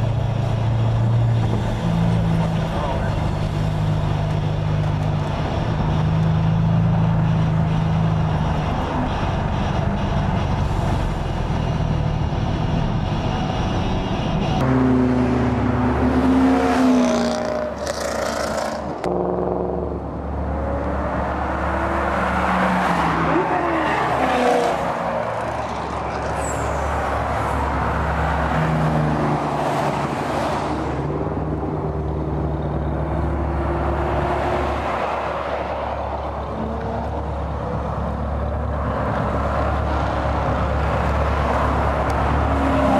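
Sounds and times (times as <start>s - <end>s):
engine drone: 0.0s - 29.0s
car engines revving: 0.0s - 42.9s.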